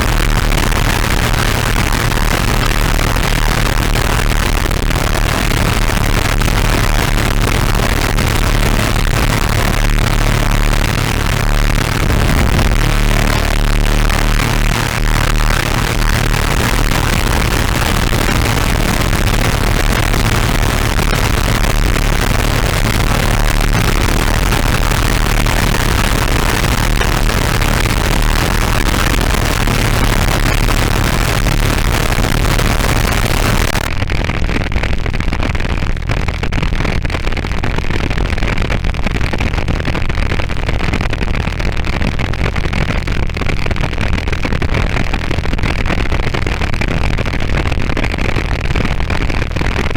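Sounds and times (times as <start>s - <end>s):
harsh distorted synth noise: 0.0s - 34.0s
heavy bass hum: 0.0s - 34.3s.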